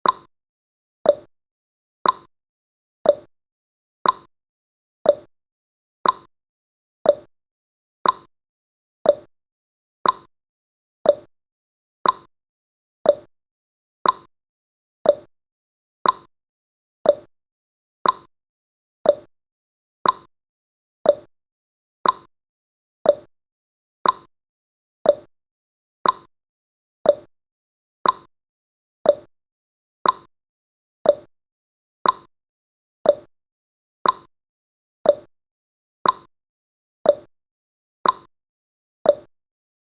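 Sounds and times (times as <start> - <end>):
clock ticking: 2.0 - 2.3, 4.0 - 4.3, 6.0 - 6.3, 8.0 - 8.3, 10.0 - 10.3, 12.0 - 12.3, 14.0 - 14.3, 15.1 - 15.3, 16.0 - 16.3, 18.0 - 18.3, 19.1 - 19.3, 20.0 - 20.3, 21.1 - 21.3, 22.0 - 22.3, 24.0 - 24.3, 26.0 - 26.3, 28.0 - 28.3, 29.1 - 29.3, 30.0 - 30.3, 31.1 - 31.3, 32.0 - 32.3, 33.1 - 33.3, 34.0 - 34.3, 35.1 - 35.3, 36.0 - 36.3, 38.0 - 38.3, 39.1 - 39.3.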